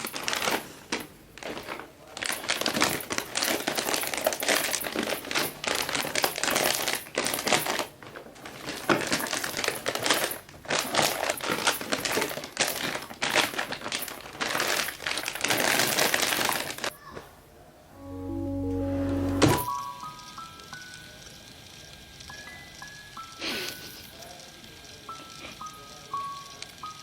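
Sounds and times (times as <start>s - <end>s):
plastic wrappers crinkling: 0.0s - 16.9s.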